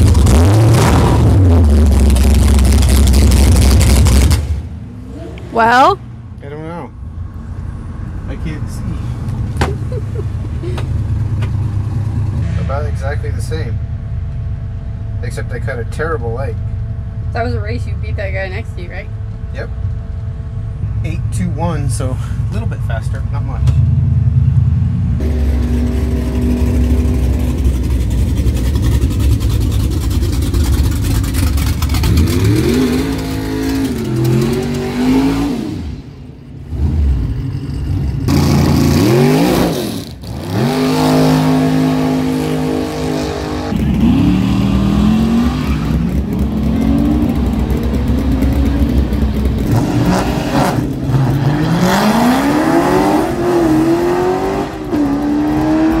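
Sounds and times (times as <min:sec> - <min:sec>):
racing car engines revving: 0:00.0 - 0:06.0, 0:21.0 - 0:56.0.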